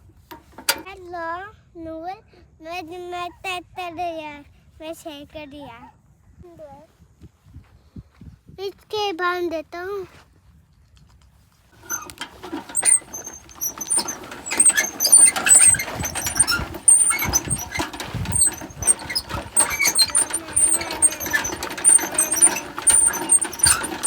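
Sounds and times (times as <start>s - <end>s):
short high squeaks: 11.8s - 24.0s
toy motor whirring: 11.8s - 24.0s.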